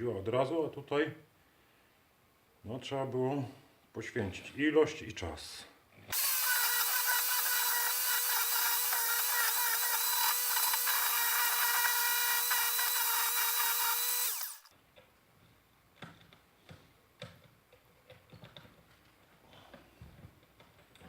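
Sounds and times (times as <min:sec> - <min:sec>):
electric power tool whining: 0:06.1 - 0:14.7.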